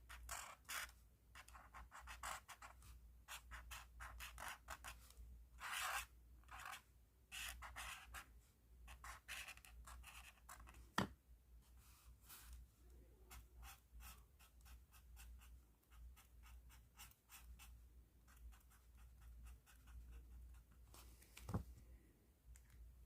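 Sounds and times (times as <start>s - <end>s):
pen scratching on paper: 0.1s - 5.0s, 5.6s - 8.3s, 8.9s - 10.8s, 13.3s - 20.8s.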